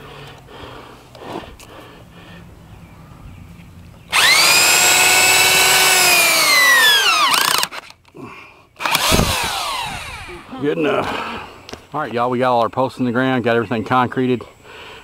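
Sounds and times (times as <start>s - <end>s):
power drill motor whining: 4.1s - 7.9s, 8.8s - 10.6s.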